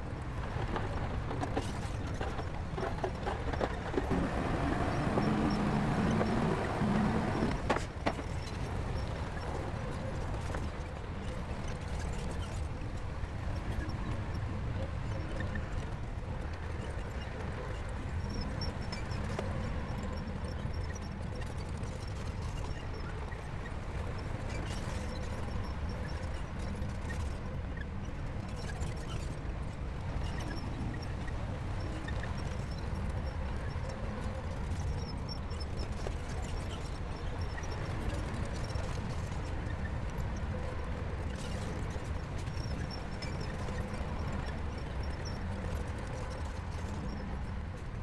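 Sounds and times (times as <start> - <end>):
heavy machinery engine rumbling: 2.2 - 7.7.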